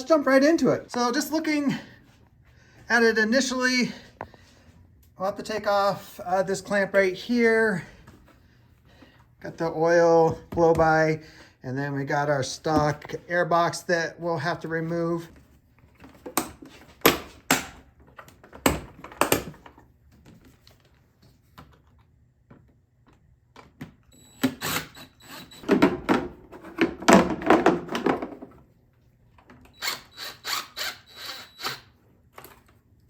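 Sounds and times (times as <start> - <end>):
plastic parts clunking and rattling: 25.6 - 28.7.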